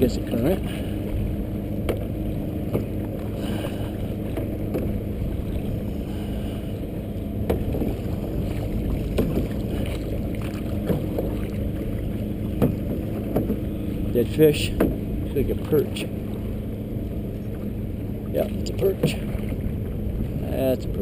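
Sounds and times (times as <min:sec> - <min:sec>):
water and wind rumble: 0:00.0 - 0:21.0
waves slapping against hull: 0:00.0 - 0:21.0
sharp knocks: 0:12.6 - 0:13.6.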